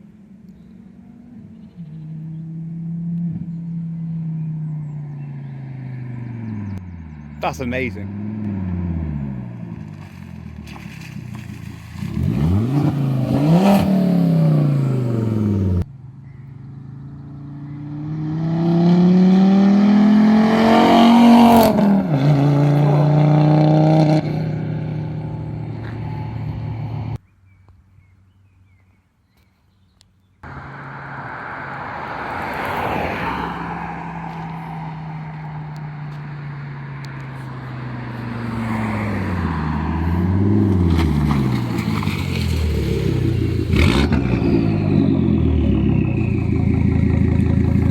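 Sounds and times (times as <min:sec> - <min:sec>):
car engine driving past: 0:30.4 - 0:47.9.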